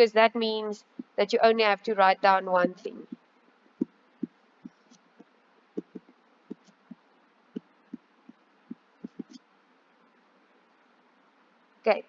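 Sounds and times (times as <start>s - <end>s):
pen tapping while writing: 5.8s - 6.8s, 9.0s - 9.4s.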